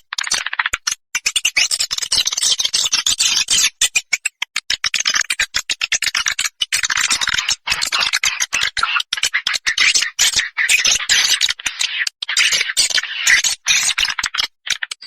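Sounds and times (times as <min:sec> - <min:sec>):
swiftlet chirps and clicks: 0:03.8 - 0:04.8.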